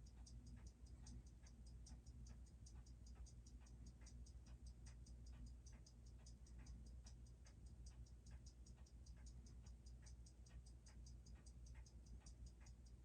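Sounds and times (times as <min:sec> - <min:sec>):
watch ticking: 0:00.0 - 0:13.0.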